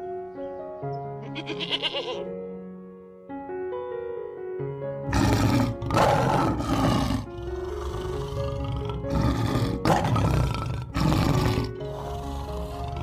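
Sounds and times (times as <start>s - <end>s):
soft background music: 0.0s - 13.0s
lion roaring: 5.1s - 13.0s.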